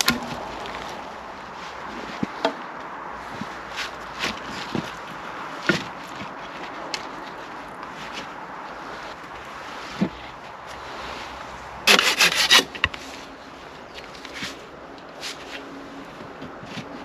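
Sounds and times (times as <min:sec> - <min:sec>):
loud tool strokes on wood: 0:11.9 - 0:12.9
tool rasping wood: 0:11.9 - 0:12.9.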